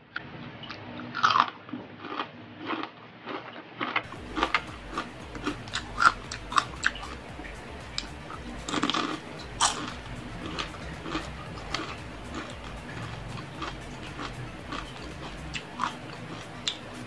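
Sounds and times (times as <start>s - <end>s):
crunchy chewing: 0.6s - 17.0s.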